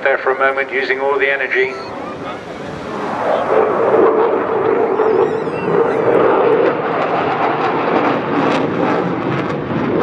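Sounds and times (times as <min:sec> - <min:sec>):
jet engine rushing: 0:00.0 - 0:10.0.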